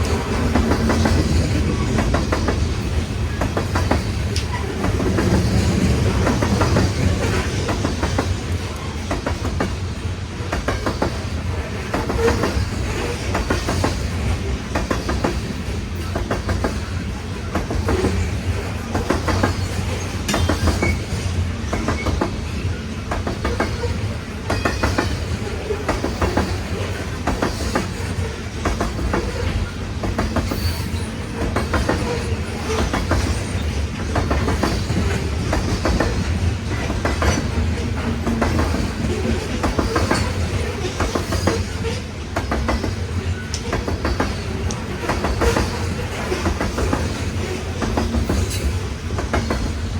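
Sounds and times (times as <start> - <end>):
freight train rumbling past: 0.0 - 49.9.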